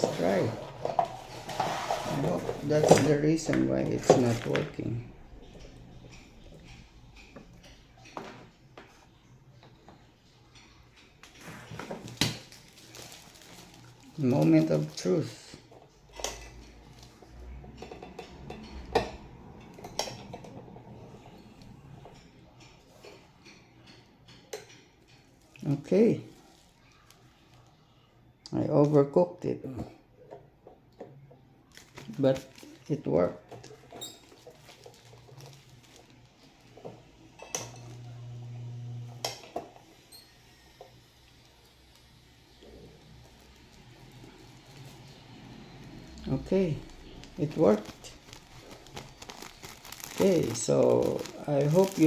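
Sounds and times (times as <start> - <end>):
bag sealer humming: 34.2 - 39.8, 41.4 - 52.0.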